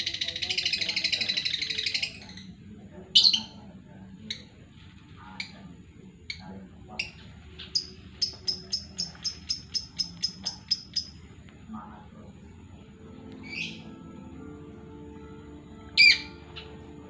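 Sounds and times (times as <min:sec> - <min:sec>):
bird chirping sharply: 0:07.0 - 0:11.2, 0:13.4 - 0:13.9, 0:16.0 - 0:16.8.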